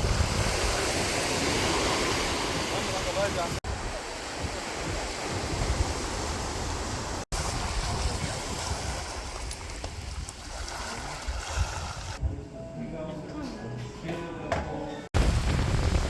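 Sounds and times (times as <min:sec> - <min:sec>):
waves washing on beach: 0:00.0 - 0:12.2
wind buffeting microphone: 0:00.0 - 0:12.4, 0:15.2 - 0:16.0.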